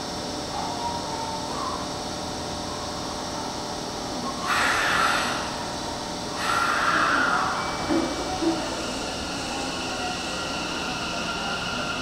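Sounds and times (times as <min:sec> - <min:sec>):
compressed-air hiss: 0:04.5 - 0:05.6, 0:06.4 - 0:07.6.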